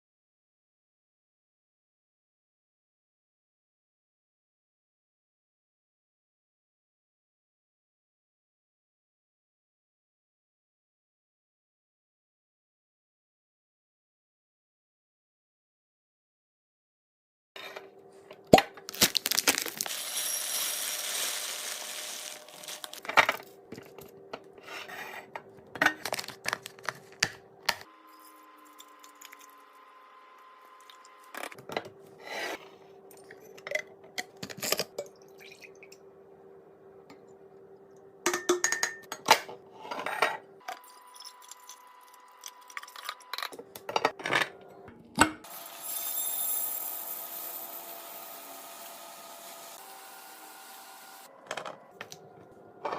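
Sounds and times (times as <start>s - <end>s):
package rustling: 18.8s - 23.2s, 26.0s - 27.4s.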